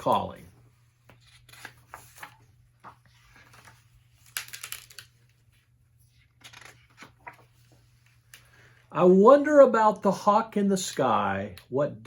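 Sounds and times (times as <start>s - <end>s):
paper pages rustling: 0.8s - 8.5s.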